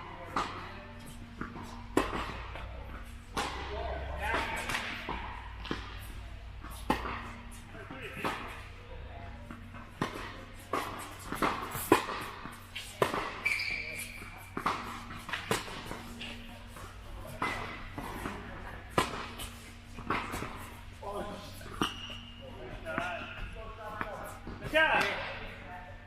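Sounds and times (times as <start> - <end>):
tennis balls popping off rackets: 0.2 - 8.7, 9.5 - 20.9.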